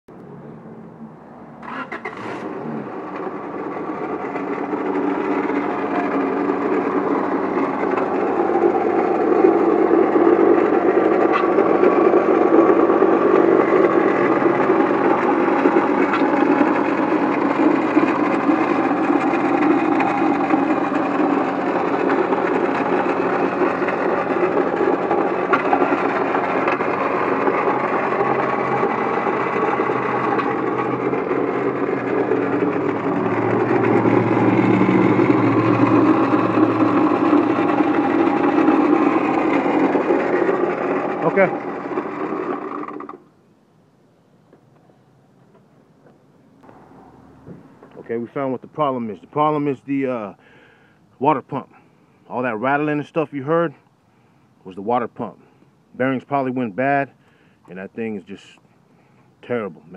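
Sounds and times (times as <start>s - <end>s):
car engine running: 1.6s - 43.4s, 46.6s - 49.9s
water pump rattling and grinding: 1.7s - 43.3s.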